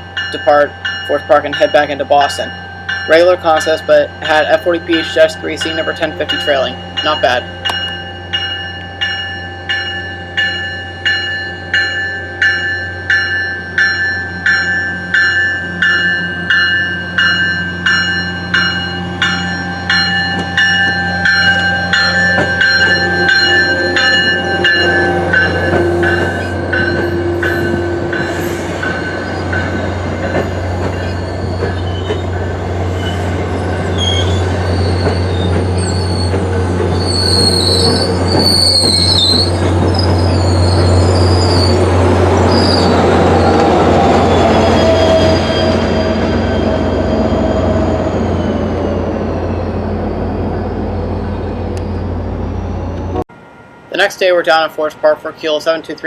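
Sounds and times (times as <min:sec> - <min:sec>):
train bell ringing: 0:00.0 - 0:32.7, 0:33.5 - 0:52.2, 0:53.0 - 0:56.0
low drone of train: 0:00.0 - 0:56.0
wheels squealing: 0:20.3 - 0:53.2.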